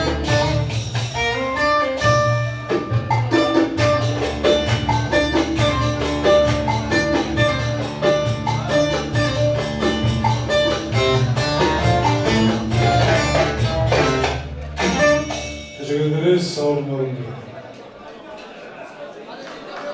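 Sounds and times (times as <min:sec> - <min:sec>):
folk dance tune melody: 0:00.0 - 0:15.8.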